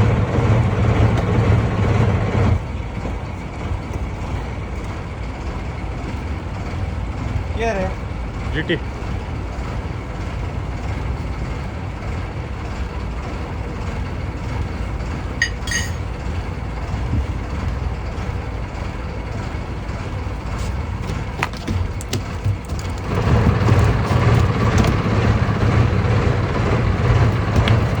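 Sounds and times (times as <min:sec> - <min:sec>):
boat engine rumbling: 0:00.0 - 0:28.0.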